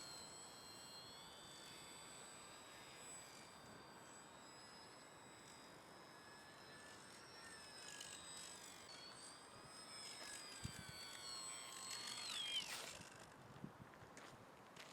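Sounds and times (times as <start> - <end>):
model plane motor whining: 0.0 - 13.6.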